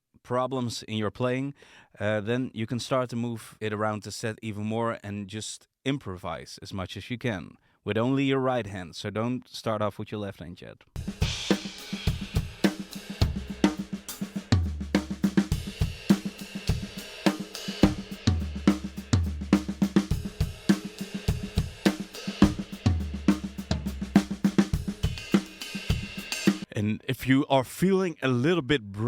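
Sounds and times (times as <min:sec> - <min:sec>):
drum kit playing: 0:11.0 - 0:26.7
deep low drum hits: 0:17.8 - 0:25.4.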